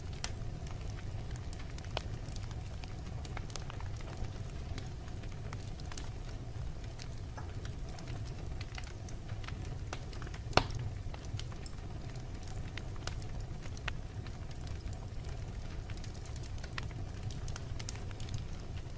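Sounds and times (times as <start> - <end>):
wood fire crackling: 0.0 - 18.9
loud pop of fire: 9.9 - 10.9.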